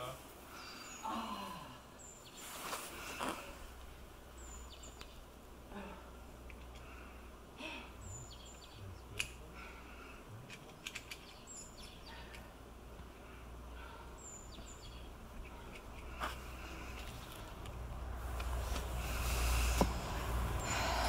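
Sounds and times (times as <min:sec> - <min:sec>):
sharp clicks: 0:10.5 - 0:12.4.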